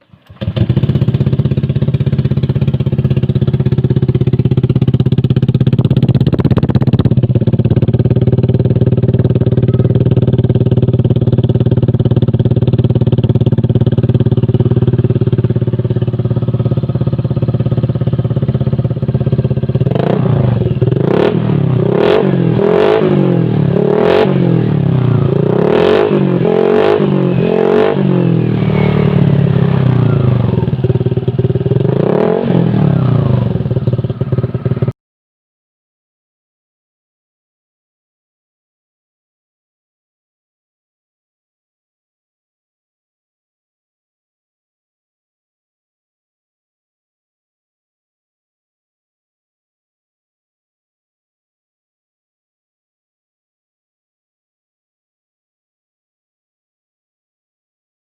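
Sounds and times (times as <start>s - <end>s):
motorcycle engine idling and revving: 0.0s - 35.0s.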